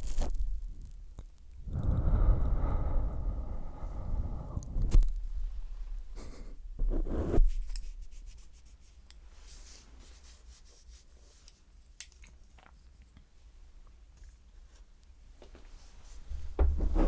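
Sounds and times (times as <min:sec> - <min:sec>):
rubbing and scratching on microphone: 0:00.0 - 0:01.0, 0:04.4 - 0:11.5, 0:15.9 - 0:17.0.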